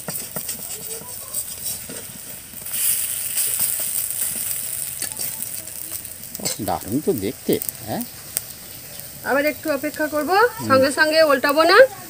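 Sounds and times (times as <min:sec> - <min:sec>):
spatula scraping and tapping pan: 0:00.0 - 0:06.8
fritters sizzling in hot oil: 0:00.0 - 0:12.0.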